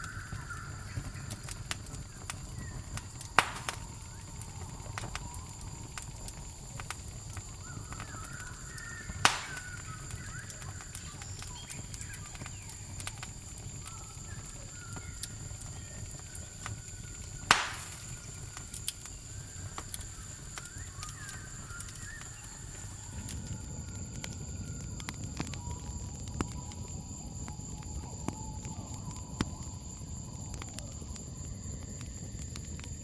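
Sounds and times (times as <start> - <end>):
faint animal calls: 0.0 - 18.5
burning wood popping: 0.0 - 33.0
campfire crackling: 0.0 - 33.0
crickets droning: 0.0 - 33.0.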